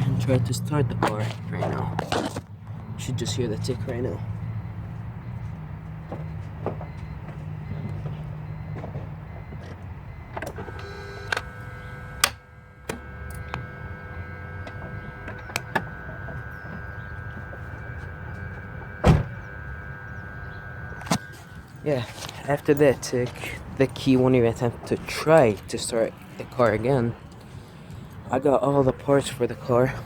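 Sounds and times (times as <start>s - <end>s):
faint steady whine: 10.1s - 24.1s.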